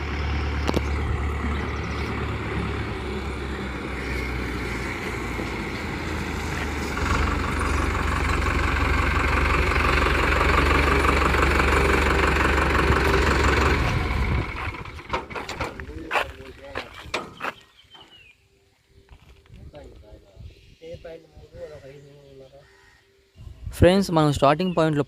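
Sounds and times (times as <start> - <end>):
tractor diesel engine running: 0.0 - 17.6.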